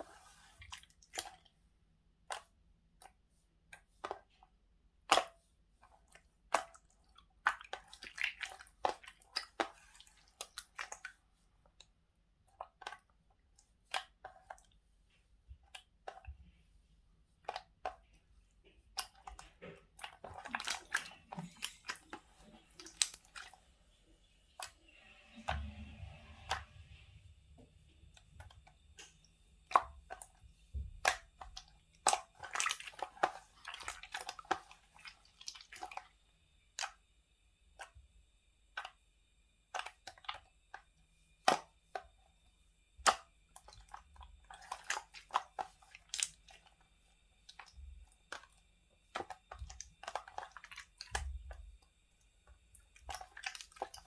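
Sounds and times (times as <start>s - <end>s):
low rumble with hiss: 21.0s - 32.0s.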